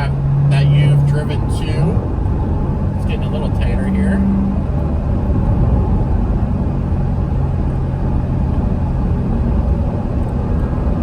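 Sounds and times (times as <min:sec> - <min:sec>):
car engine running: 0:00.0 - 0:11.0
tyre and road rumble: 0:00.0 - 0:11.0.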